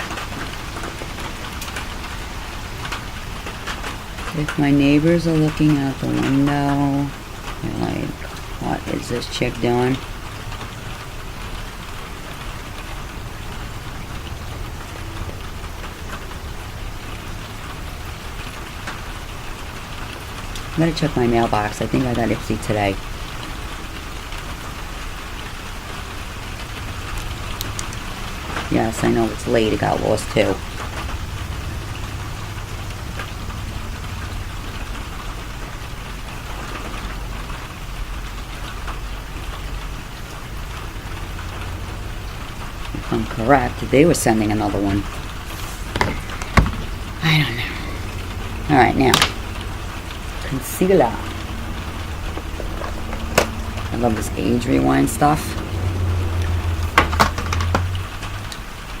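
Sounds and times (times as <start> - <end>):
low steady hum: 0.0 - 59.0
steady rain falling: 0.0 - 59.0
low rumble: 45.0 - 59.0.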